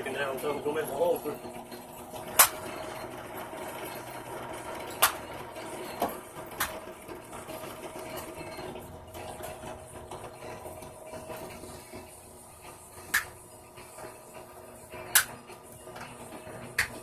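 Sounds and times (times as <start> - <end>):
sharp clicks or knocks: 2.4 - 2.6, 15.1 - 15.4.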